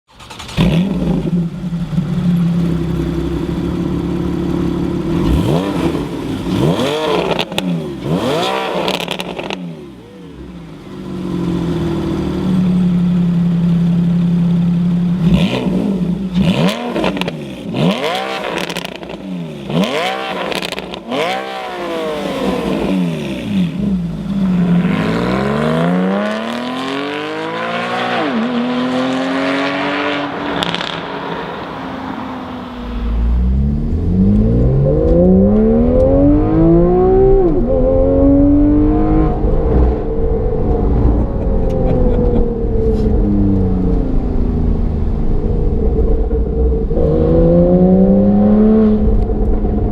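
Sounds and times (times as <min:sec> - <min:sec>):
sports car engine accelerating: 0:00.6 - 0:49.9
heavy low rumble: 0:32.2 - 0:49.9.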